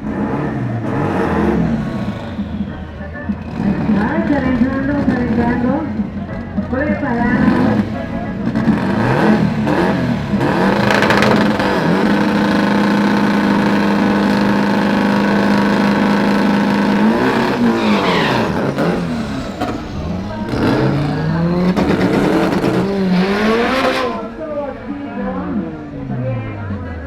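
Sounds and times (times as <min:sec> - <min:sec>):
racing car engines revving: 0:00.0 - 0:27.0.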